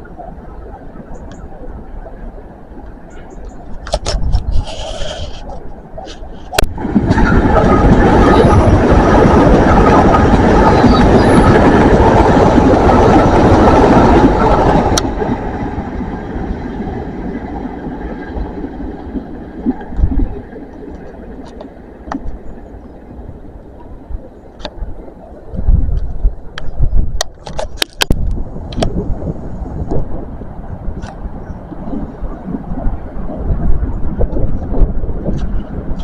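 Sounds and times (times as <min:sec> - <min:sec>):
train passing: 0:00.0 - 0:26.7, 0:28.2 - 0:36.0.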